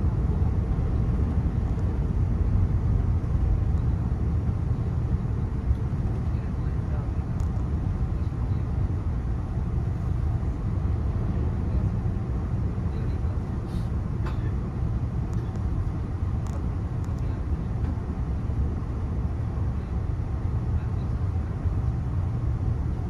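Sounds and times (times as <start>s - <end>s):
train wheels rumbling on track: 0.0s - 23.0s.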